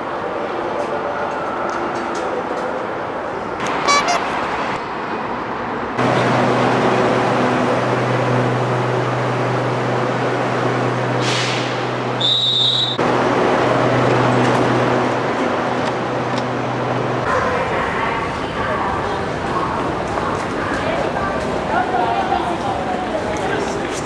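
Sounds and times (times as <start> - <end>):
electric train hum: 0.0 - 24.0
short high beep: 3.9 - 4.2.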